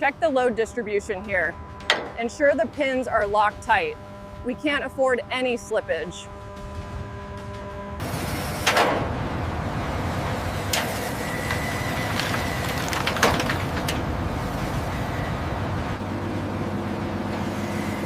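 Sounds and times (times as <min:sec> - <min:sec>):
heavy machinery rumbling: 0:00.0 - 0:18.0
sharp cracking impacts: 0:06.3 - 0:14.2.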